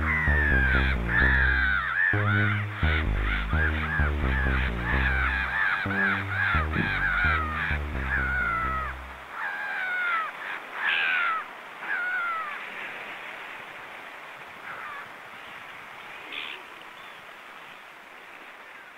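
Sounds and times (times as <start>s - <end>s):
music with stepping bass line: 0.0s - 9.2s
bird falling cries: 5.1s - 12.6s.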